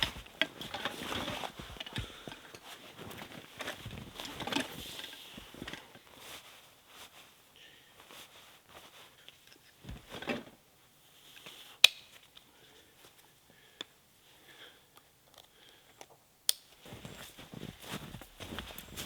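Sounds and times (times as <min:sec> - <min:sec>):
camping gear clicks and taps: 0:00.0 - 0:06.1, 0:15.0 - 0:19.0
footsteps in snow: 0:00.0 - 0:07.4, 0:16.8 - 0:19.0
rustle of camping gear: 0:00.0 - 0:13.4, 0:16.7 - 0:19.0.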